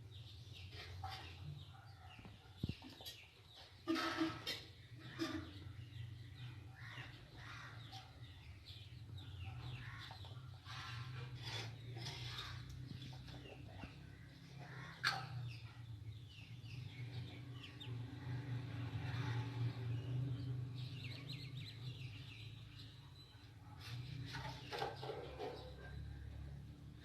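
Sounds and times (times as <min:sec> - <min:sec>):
birds chirping: 0:04.4 - 0:27.0.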